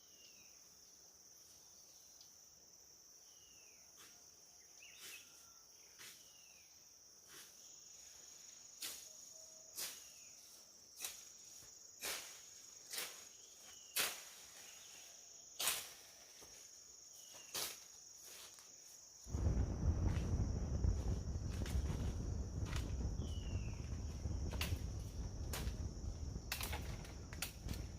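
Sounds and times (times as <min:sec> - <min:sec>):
insects shrilling: 0:07.3 - 0:27.9
faint chirps: 0:13.2 - 0:18.0, 0:18.8 - 0:27.9
loud low rumbling: 0:19.3 - 0:27.9.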